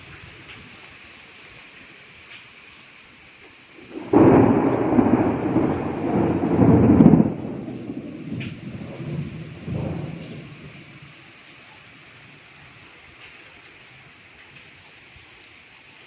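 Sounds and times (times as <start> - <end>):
rain hissing: 0.0 - 16.0
thunder rumbling: 3.8 - 11.4.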